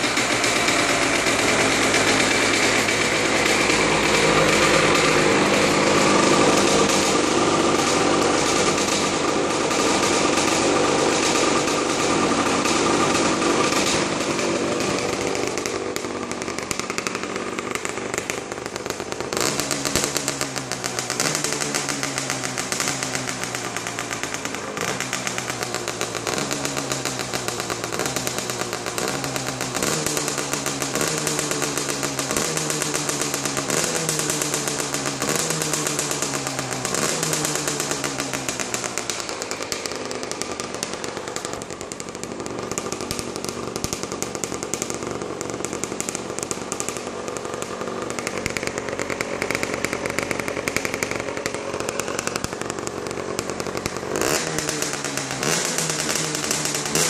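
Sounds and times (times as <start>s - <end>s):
two-stroke engine revving: 0.0s - 57.0s.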